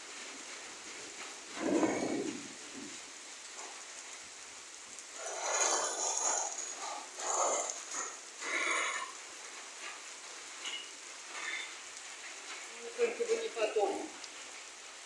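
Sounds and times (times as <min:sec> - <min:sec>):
rain hissing: 0:00.0 - 0:15.0.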